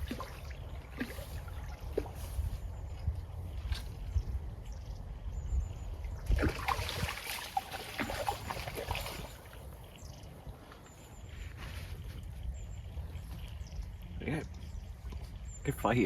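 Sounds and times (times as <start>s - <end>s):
fish thrashing in water: 0.0s - 2.5s, 6.2s - 9.7s.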